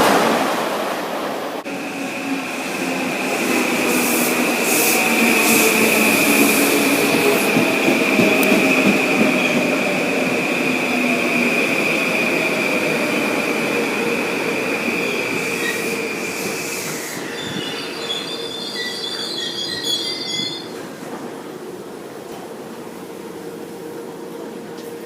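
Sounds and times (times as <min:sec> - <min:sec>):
train noise: 0:00.0 - 0:25.0
train wheels squealing on rails: 0:14.2 - 0:21.5.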